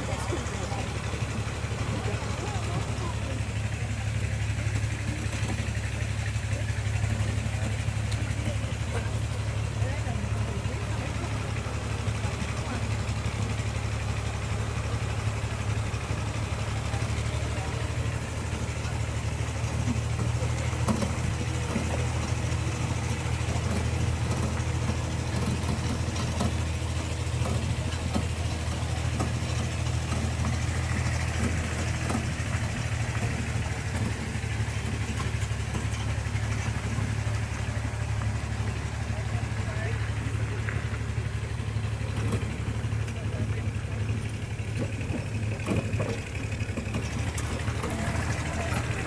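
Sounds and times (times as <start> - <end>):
vehicle engine humming: 0.0 - 49.0
small knocks and rattles: 16.3 - 49.0.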